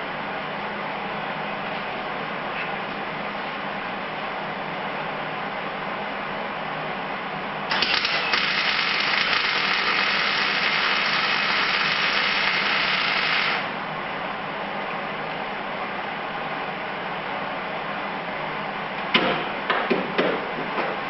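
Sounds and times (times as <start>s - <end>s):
steady low hum: 0.0s - 19.7s
welder arc crackling buzz: 7.7s - 13.9s.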